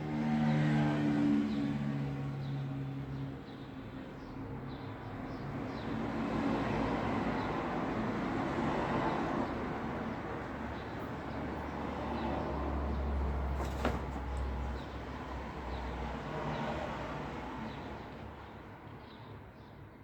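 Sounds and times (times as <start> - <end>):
vehicles passing: 5.6 - 18.8.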